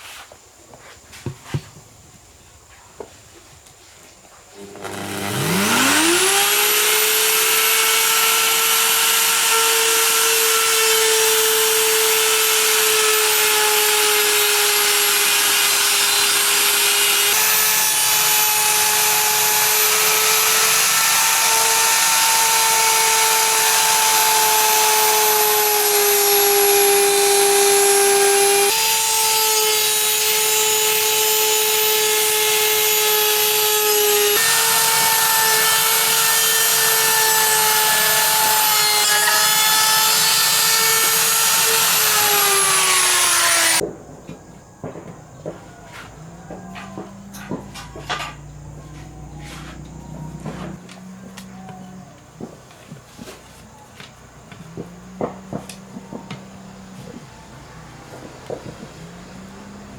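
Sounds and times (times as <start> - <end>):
electric power tool whining: 4.6 - 43.8.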